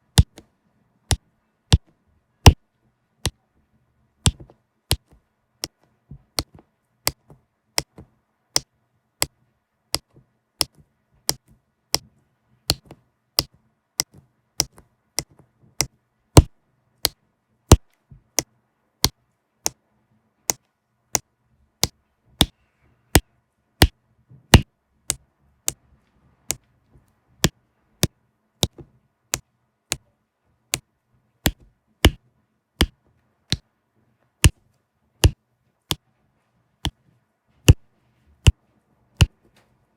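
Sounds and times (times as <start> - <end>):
plastic pen tapping: 0.1 - 0.5, 1.1 - 2.6, 3.2 - 3.4, 4.2 - 19.8, 23.2 - 25.8, 27.4 - 30.1, 30.7 - 32.2, 35.2 - 36.0, 37.7 - 37.9.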